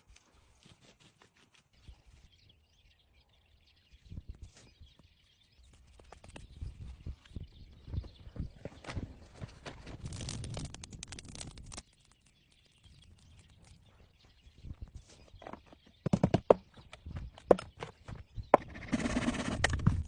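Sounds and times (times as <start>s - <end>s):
irregular knocks and clicks: 15.4s - 18.9s.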